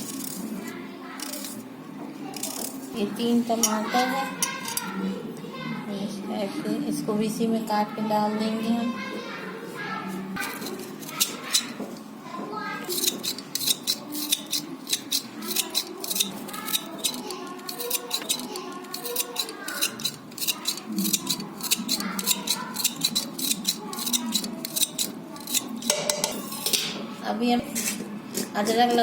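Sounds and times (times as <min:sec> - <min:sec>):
knife cutting tomatoes: 0:12.8 - 0:26.8.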